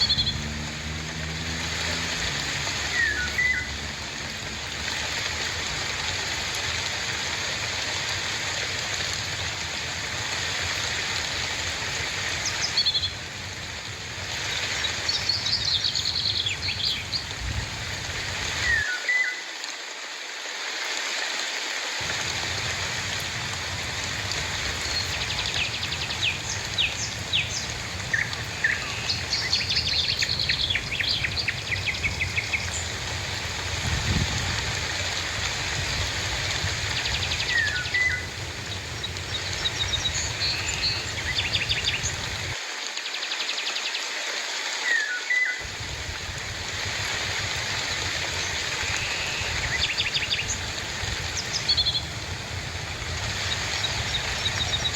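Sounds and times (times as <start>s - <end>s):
birds chirping and trilling: 0.0s - 5.8s, 12.4s - 13.6s, 14.3s - 19.0s, 22.0s - 34.5s, 35.4s - 42.6s, 45.6s - 54.9s
steady rain falling: 0.0s - 54.9s.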